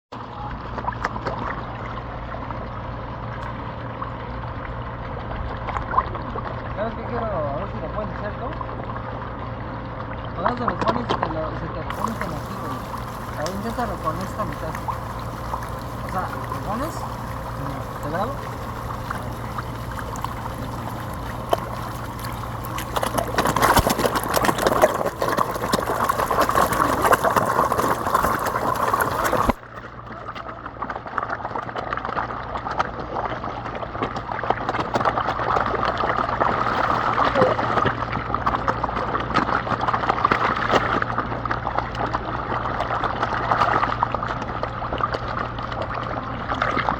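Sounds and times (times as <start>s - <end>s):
running water trickling: 11.9s - 29.6s.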